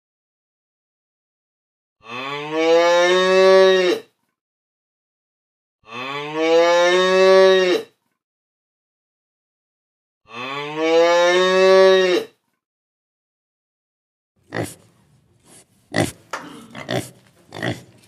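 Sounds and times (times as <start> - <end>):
cow mooing: 2.0 - 4.1, 5.8 - 7.9, 10.3 - 12.3.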